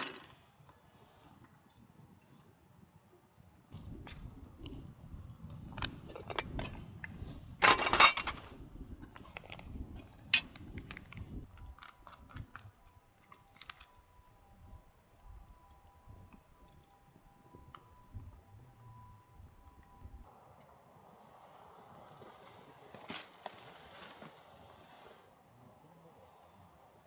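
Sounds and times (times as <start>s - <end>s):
small hard objects clinking: 0.0s - 0.3s, 7.6s - 8.5s, 10.4s - 14.0s
faint steady high tone: 12.7s - 20.6s.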